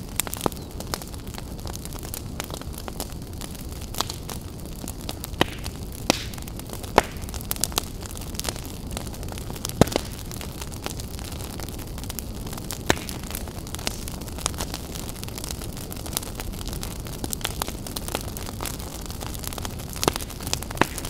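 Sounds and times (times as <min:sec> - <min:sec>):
fire crackling: 0:00.0 - 0:21.0
sharp pops and snaps: 0:05.4 - 0:07.8, 0:09.7 - 0:10.2, 0:12.8 - 0:14.1, 0:20.0 - 0:21.0.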